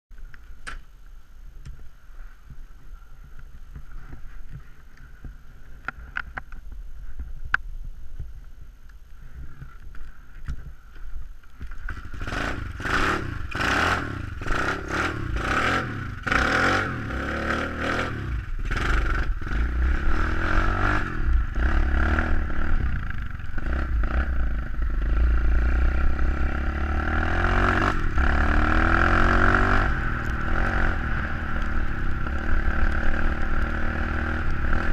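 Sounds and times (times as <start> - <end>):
pit bike engine: 11.6 - 34.9.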